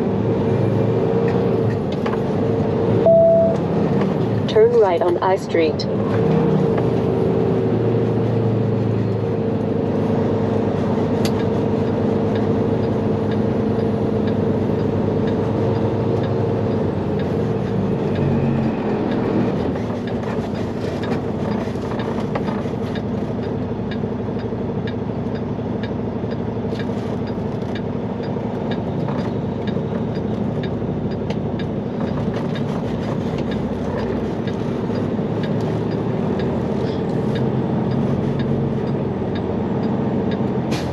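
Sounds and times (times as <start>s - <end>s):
road noise: 0.0s - 40.9s
truck diesel engine droning: 0.0s - 40.9s.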